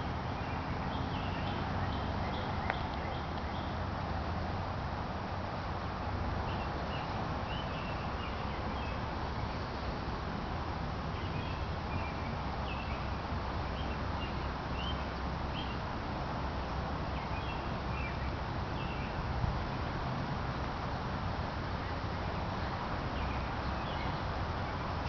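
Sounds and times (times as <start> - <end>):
songbird chirping: 0.0 - 3.9, 6.4 - 10.2, 11.1 - 15.9, 17.0 - 20.1, 21.8 - 25.0
low outdoor rumble and hiss: 0.0 - 25.0.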